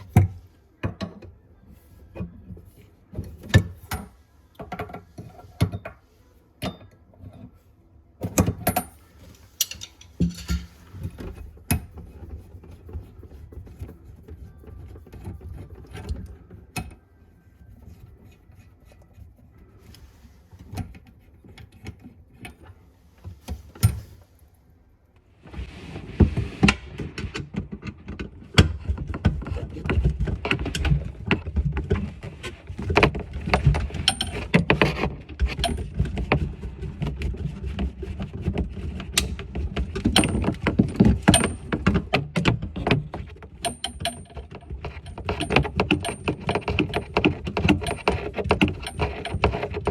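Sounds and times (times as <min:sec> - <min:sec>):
tools clattering and rattling: 0:08.2 - 0:12.0, 0:26.8 - 0:36.5, 0:39.2 - 0:49.9
metallic clicks and knocks: 0:08.2 - 0:12.1, 0:39.2 - 0:49.9.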